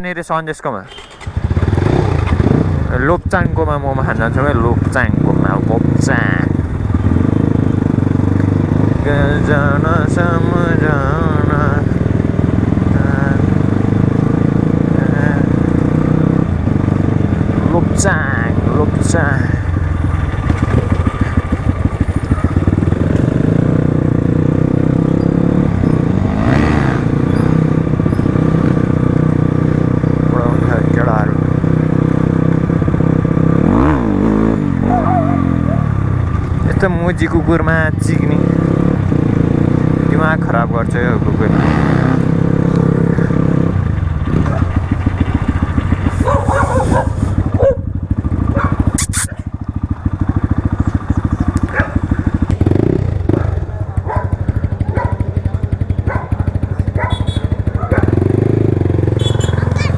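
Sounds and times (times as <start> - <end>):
dirt bike engine running: 0.9 - 59.9
dog barking: 34.8 - 36.0, 44.4 - 44.8, 46.1 - 47.9, 48.5 - 49.5, 51.6 - 52.1, 53.4 - 55.4, 56.0 - 58.2, 59.3 - 59.9
sharp double click: 49.0 - 49.3.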